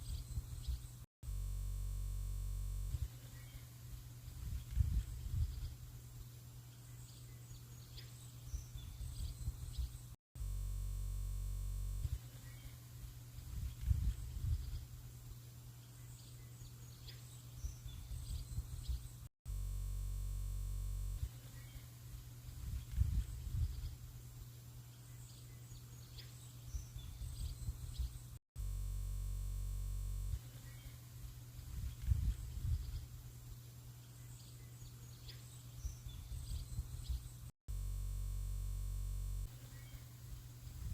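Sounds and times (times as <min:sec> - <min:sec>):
faint bird chirps: 0:00.0 - 0:01.0, 0:02.9 - 0:10.2, 0:12.0 - 0:19.3, 0:21.2 - 0:28.4, 0:30.4 - 0:37.5, 0:39.6 - 0:40.9
wind rumble on microphone: 0:00.0 - 0:01.0, 0:04.2 - 0:05.9, 0:08.6 - 0:10.1, 0:13.4 - 0:15.0, 0:17.7 - 0:19.2, 0:22.5 - 0:24.1, 0:26.8 - 0:28.4, 0:31.6 - 0:33.3, 0:35.8 - 0:37.4, 0:40.7 - 0:40.9
steady buzzing drone: 0:00.0 - 0:07.2, 0:08.8 - 0:15.3, 0:19.5 - 0:22.2, 0:28.6 - 0:33.4, 0:37.7 - 0:40.9
steady low hum: 0:00.0 - 0:25.6, 0:26.6 - 0:40.9.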